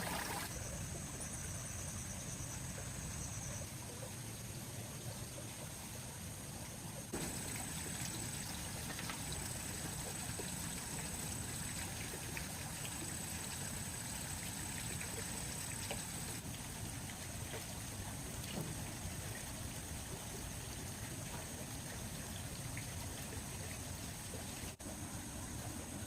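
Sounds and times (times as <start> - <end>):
shallow water trickling: 0.0 - 0.5, 7.0 - 26.0.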